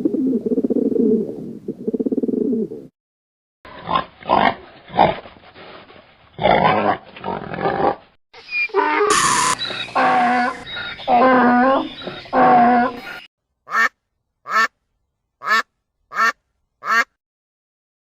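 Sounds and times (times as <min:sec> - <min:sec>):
animal calls: 0:08.4 - 0:13.3.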